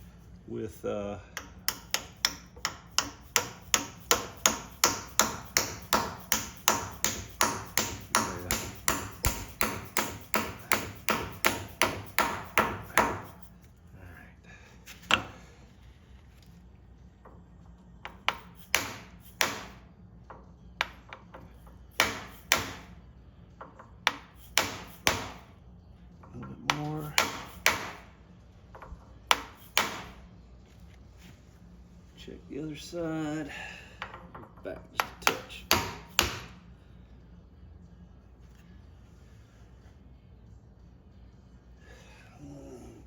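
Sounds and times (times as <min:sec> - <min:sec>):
hammer striking metal: 0:01.4 - 0:13.4, 0:18.1 - 0:19.9, 0:21.9 - 0:23.0, 0:24.1 - 0:25.5, 0:26.5 - 0:28.2, 0:29.3 - 0:30.2, 0:35.0 - 0:36.6.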